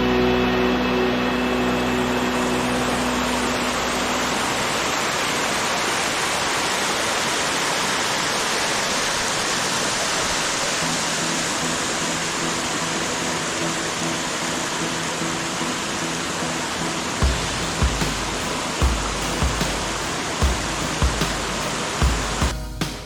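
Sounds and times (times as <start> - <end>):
rushing water: 1.3 - 22.5.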